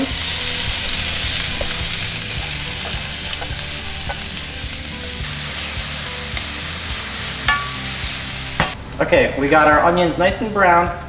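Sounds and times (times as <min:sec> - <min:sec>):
onion sizzling in hot oil: 0:00.0 - 0:08.8.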